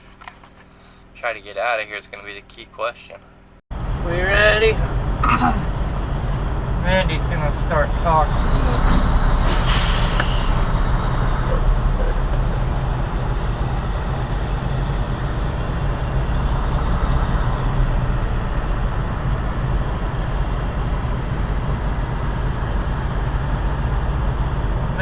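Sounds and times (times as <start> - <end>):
diesel truck engine running: 1.1 - 25.0
air hiss: 7.8 - 11.6.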